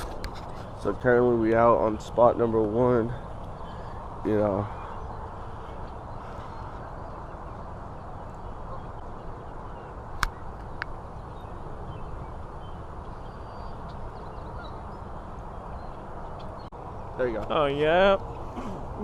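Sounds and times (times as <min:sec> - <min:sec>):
outdoor background noise: 0:00.0 - 0:19.0
faint bird calls: 0:03.2 - 0:07.6, 0:11.4 - 0:16.7.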